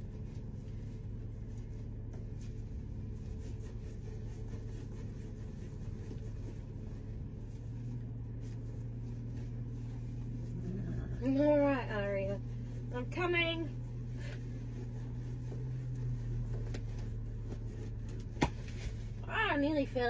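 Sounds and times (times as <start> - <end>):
car engine idling: 0.0 - 20.0
twine sawing against hay: 3.0 - 7.1.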